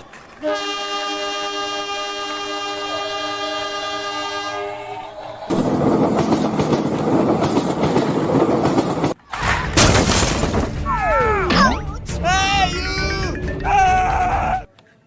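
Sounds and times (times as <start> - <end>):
horn chord: 0.4 - 5.0.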